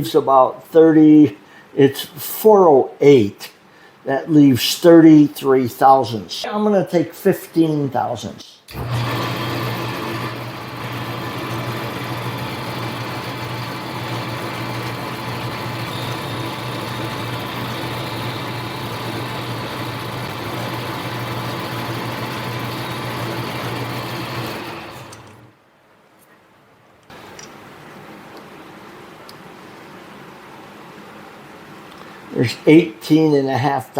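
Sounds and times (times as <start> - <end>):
metal lathe running: 8.7 - 25.5.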